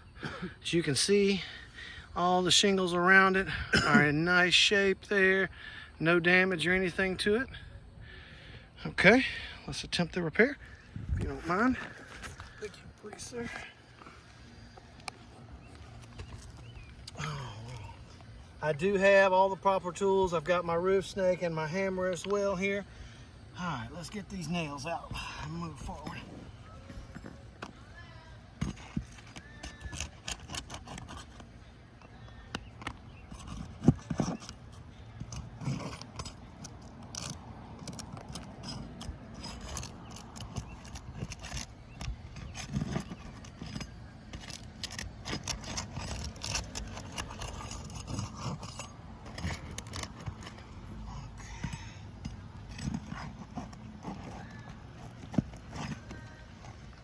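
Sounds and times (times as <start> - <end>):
metal scrapes clicks and taps: 35.2 - 57.0.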